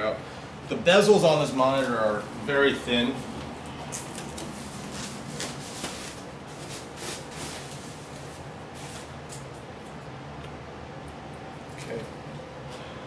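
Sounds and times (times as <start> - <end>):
packaging rustling: 3.9 - 9.1.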